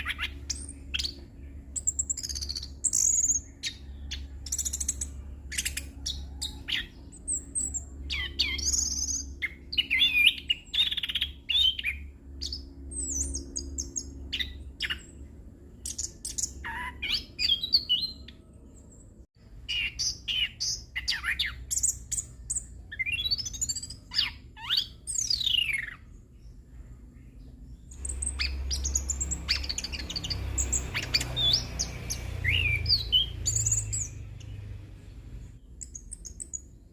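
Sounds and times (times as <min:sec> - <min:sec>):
steady low hum: 0:00.0 - 0:36.9
rising and falling whistles: 0:28.0 - 0:34.2.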